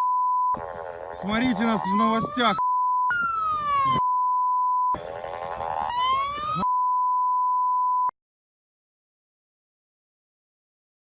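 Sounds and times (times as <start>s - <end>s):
emergency siren wailing: 0.5s - 4.1s, 4.9s - 6.8s
high single-pitch beep tone: 2.6s - 3.2s, 4.0s - 5.0s, 6.6s - 8.1s.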